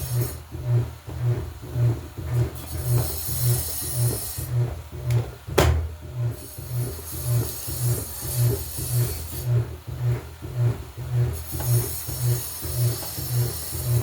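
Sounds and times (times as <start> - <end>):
washing machine pulsing hum: 0.0 - 14.0
sharp knock: 5.6 - 6.0.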